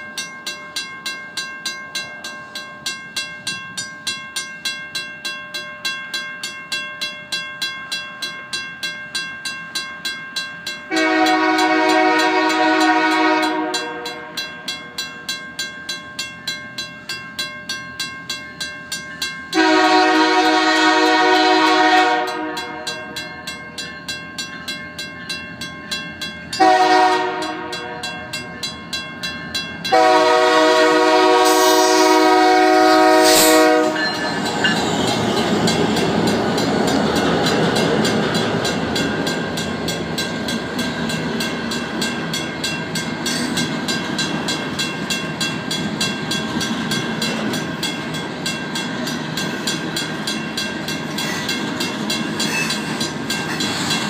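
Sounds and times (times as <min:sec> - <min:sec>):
crossing bell ringing: 0:00.0 - 0:54.0
locomotive air horn: 0:10.9 - 0:14.4, 0:19.6 - 0:23.2, 0:26.6 - 0:28.0, 0:29.9 - 0:34.2
wheels clacking over rail joints: 0:32.3 - 0:54.0.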